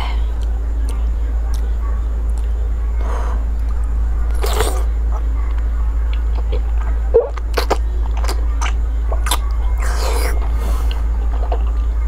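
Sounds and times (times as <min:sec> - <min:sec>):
wet chewing: 0:06.1 - 0:11.8.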